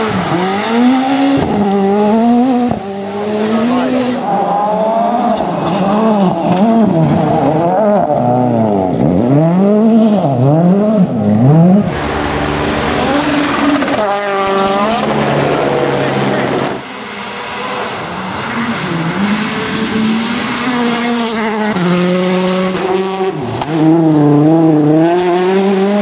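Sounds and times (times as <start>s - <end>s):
rally car engines revving: 0.0s - 26.0s
rush of noise: 11.1s - 20.7s.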